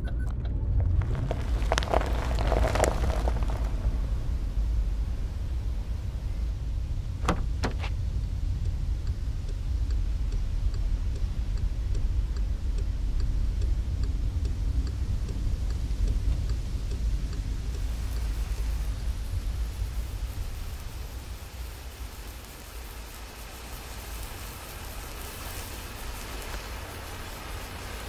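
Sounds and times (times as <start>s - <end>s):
low engine rumble: 0.0s - 28.0s
faint regular ticking: 7.3s - 28.0s.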